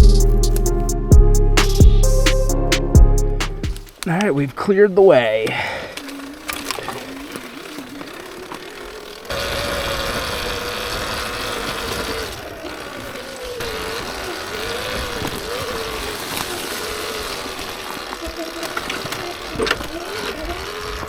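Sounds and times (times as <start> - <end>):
tyre and trail noise: 0.0 - 21.0
electric motor whine: 6.2 - 21.0.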